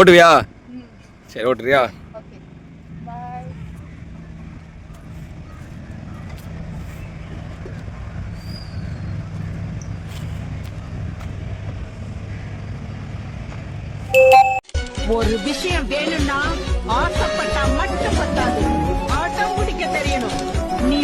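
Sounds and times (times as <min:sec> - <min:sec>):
road noise: 0:00.0 - 0:14.2.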